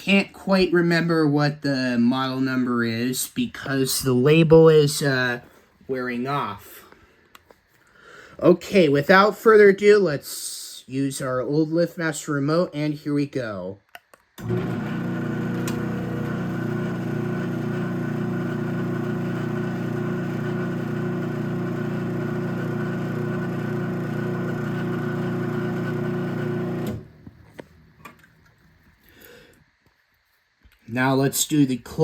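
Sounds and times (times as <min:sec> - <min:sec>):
garage door opener motor hum: 0:14.4 - 0:27.4.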